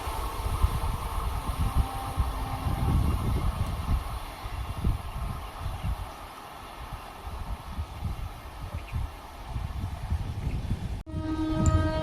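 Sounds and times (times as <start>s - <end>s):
wind on microphone: 0.0s - 6.2s, 6.8s - 12.0s
distant train rumble: 0.0s - 12.0s.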